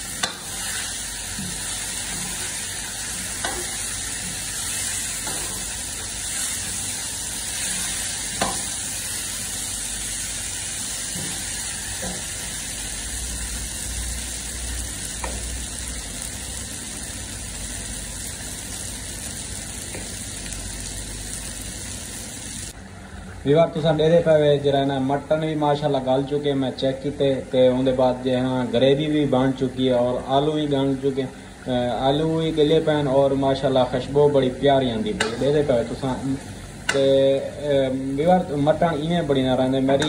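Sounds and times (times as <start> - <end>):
meat sizzling in oil: 0.0 - 22.8.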